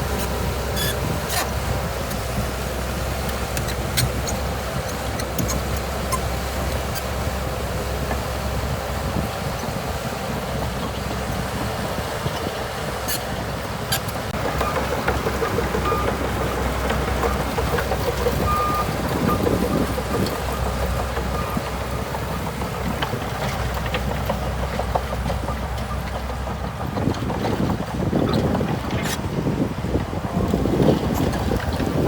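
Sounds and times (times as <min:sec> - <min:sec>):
diesel engine rumbling: 0:00.0 - 0:32.0
high squeaks: 0:00.8 - 0:01.5
wind on microphone: 0:26.6 - 0:32.0.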